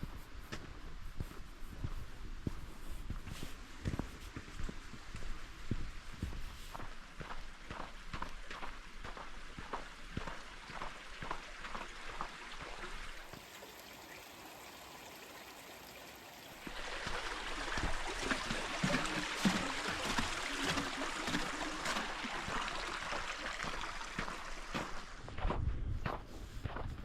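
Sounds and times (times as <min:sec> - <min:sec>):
footsteps: 0:00.0 - 0:13.5, 0:16.6 - 0:27.0
stream rushing: 0:09.2 - 0:25.2.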